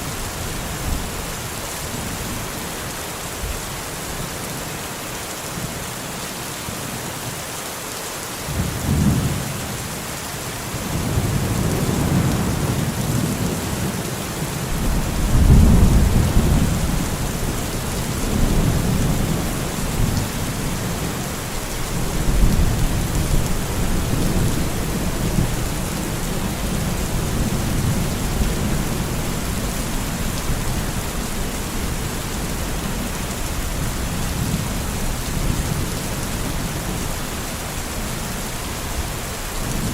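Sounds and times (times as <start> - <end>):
steady rain: 0.0 - 39.9
rolling thunder: 14.7 - 21.1.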